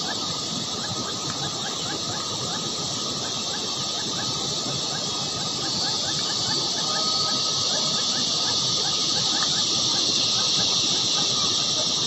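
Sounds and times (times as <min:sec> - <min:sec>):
steady high hiss: 0:00.0 - 0:12.0
baby birds peeping: 0:03.2 - 0:11.8.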